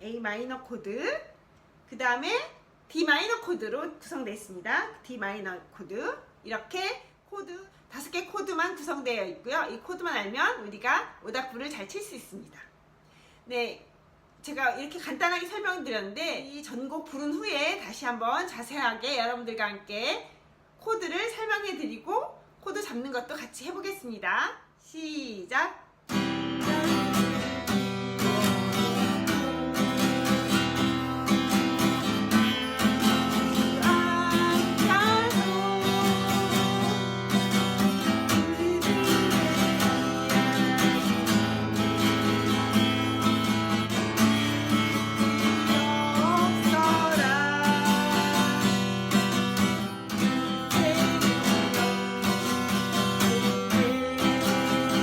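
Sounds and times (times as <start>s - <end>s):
acoustic guitar strummed in waltz rhythm: 26.1s - 55.0s.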